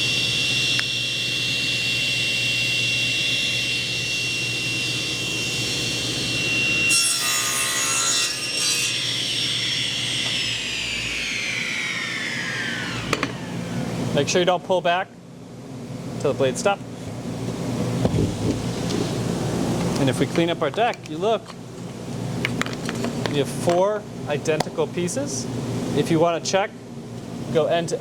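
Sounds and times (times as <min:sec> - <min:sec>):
miter saw motor whining: 0:00.0 - 0:07.8, 0:08.5 - 0:14.0
saw blade cutting wood: 0:05.2 - 0:13.6.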